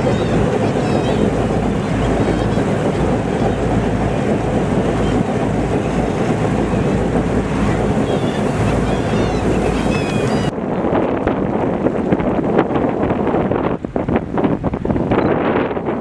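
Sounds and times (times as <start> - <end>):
steady low rumble: 0.0 - 15.2
wind buffeting microphone: 0.0 - 16.0
faint high bird calls: 8.0 - 10.5.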